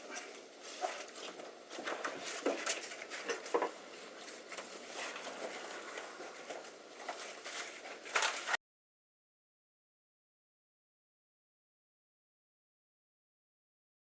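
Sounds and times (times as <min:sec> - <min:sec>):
foil material crinkling: 0:00.2 - 0:08.6.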